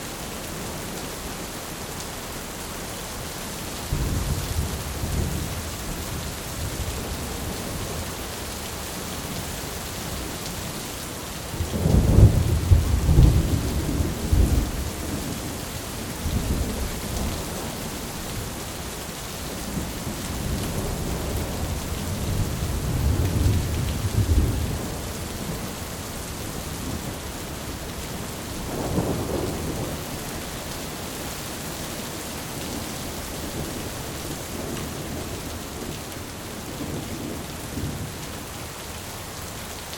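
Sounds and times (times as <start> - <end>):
steady rain: 0.0 - 39.9
rolling thunder rumbles: 11.5 - 17.8, 19.7 - 25.9, 26.5 - 30.3.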